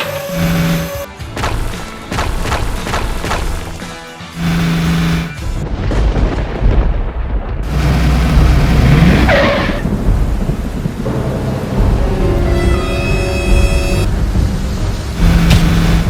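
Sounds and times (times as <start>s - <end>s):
rain hissing: 0.0s - 2.1s, 4.4s - 5.8s, 7.6s - 16.0s
thunder rumbling: 4.4s - 16.0s.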